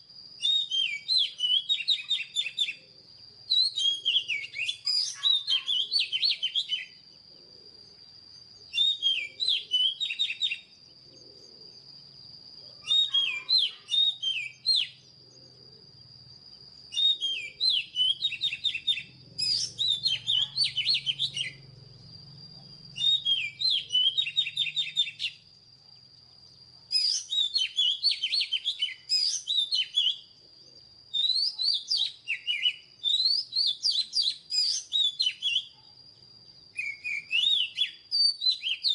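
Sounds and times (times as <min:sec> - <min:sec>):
bird singing whistled phrases: 0:00.4 - 0:02.9, 0:03.5 - 0:07.1, 0:08.6 - 0:10.8, 0:12.8 - 0:15.1, 0:16.8 - 0:21.6, 0:22.8 - 0:25.5, 0:26.9 - 0:30.3, 0:31.1 - 0:35.8, 0:36.7 - 0:38.9
thin steady high tone: 0:01.0 - 0:31.2.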